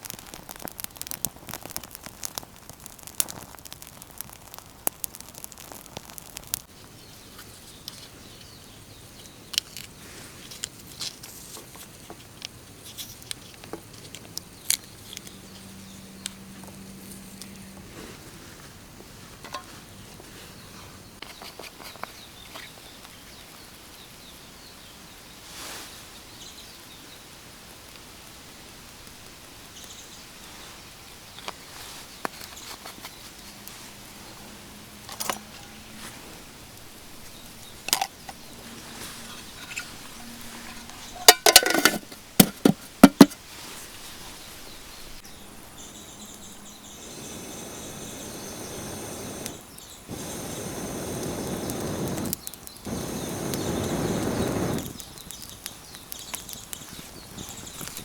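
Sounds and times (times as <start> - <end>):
campfire crackling and popping: 0.0 - 17.8, 27.7 - 30.2, 31.2 - 43.5, 45.3 - 58.0
outdoor hiss: 0.0 - 58.0.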